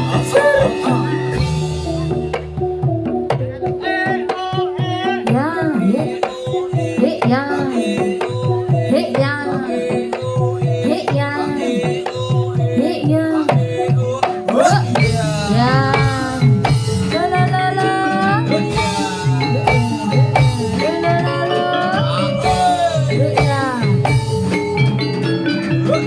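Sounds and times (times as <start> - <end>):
held melodic ensemble notes: 0.0 - 4.9, 15.0 - 26.0.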